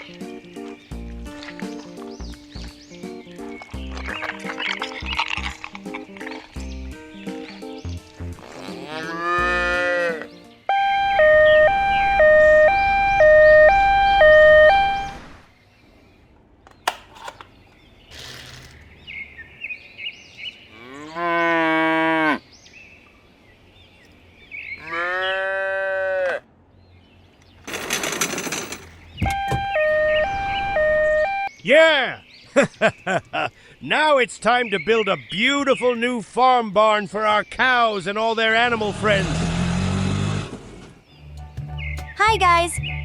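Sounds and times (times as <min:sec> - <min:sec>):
cow mooing: 0:08.4 - 0:10.3, 0:20.7 - 0:22.4, 0:24.8 - 0:26.4
hi-lo siren: 0:10.7 - 0:15.4, 0:29.2 - 0:31.5.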